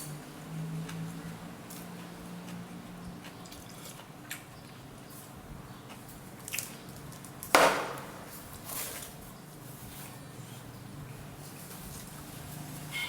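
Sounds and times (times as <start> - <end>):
loud ringing knock: 7.6 - 8.3.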